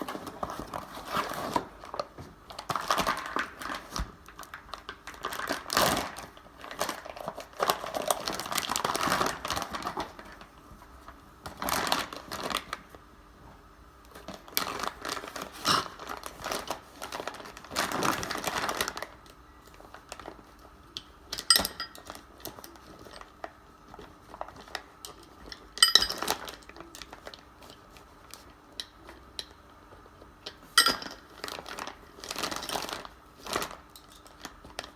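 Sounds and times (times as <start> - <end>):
rustling and scraping: 0.0 - 2.4.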